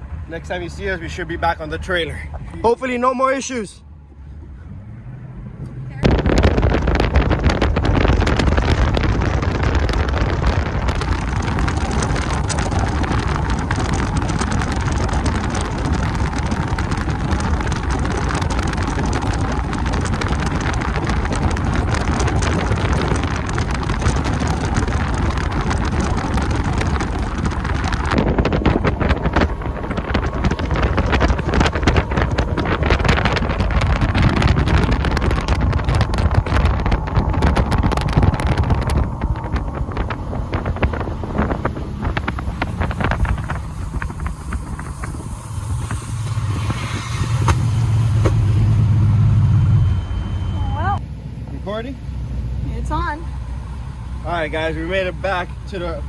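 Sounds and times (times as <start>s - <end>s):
wind buffeting microphone: 0.0s - 56.0s
boat rushing through water: 5.9s - 56.0s.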